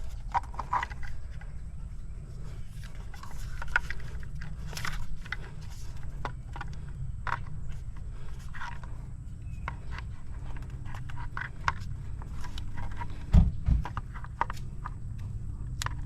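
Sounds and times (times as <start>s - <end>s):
low rumble: 13.1s - 15.9s
loud low thumps: 13.3s - 13.9s.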